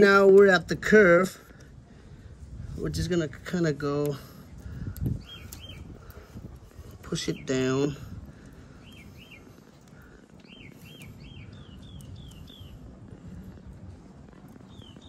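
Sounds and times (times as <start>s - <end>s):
low outdoor background: 0.0s - 15.0s
small bird chirping: 5.0s - 6.2s, 8.7s - 13.0s, 14.5s - 15.0s.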